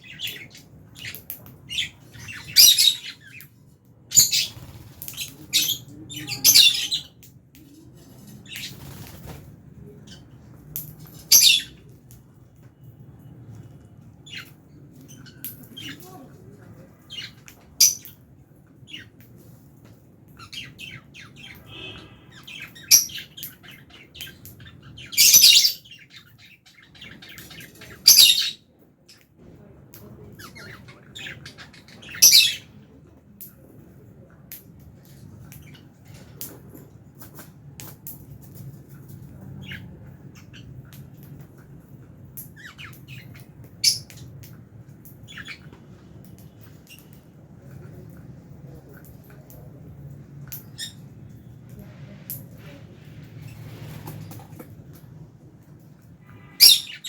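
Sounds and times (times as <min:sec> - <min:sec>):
lovebirds chirping: 0:00.0 - 0:12.0, 0:12.6 - 0:19.4, 0:20.3 - 0:29.2, 0:30.0 - 0:32.8, 0:42.4 - 0:47.2, 0:50.4 - 0:51.6, 0:56.0 - 0:57.0.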